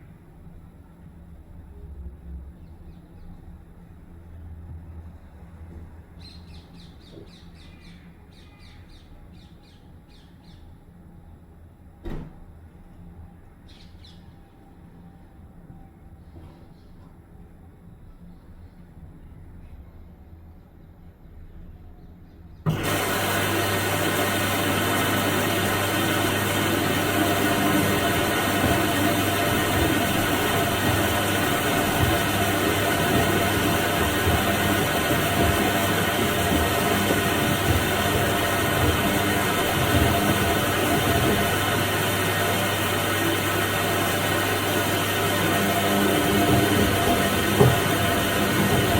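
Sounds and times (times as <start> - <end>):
washing machine humming: 22.7 - 48.9.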